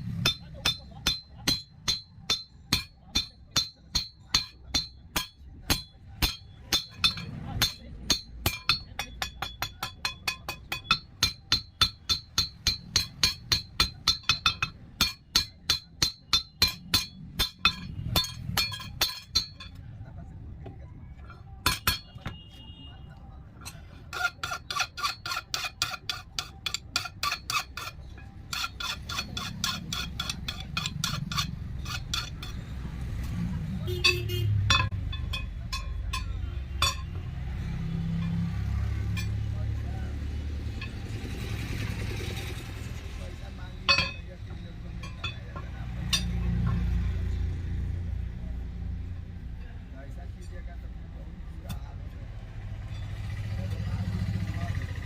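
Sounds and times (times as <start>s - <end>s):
hammer ringing on steel: 0.0s - 19.8s, 21.6s - 22.5s, 33.8s - 39.5s, 43.8s - 46.9s.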